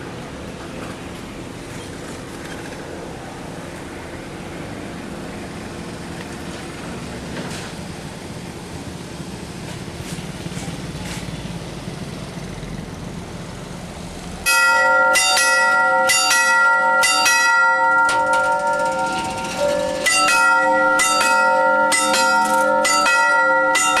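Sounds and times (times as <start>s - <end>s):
train rumbling past: 0.0s - 24.0s
level crossing warning bell: 14.4s - 24.0s.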